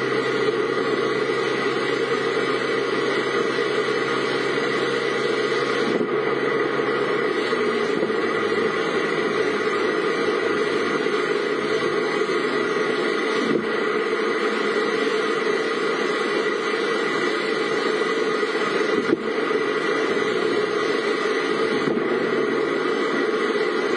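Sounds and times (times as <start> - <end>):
car engine hum: 0.0 - 23.9.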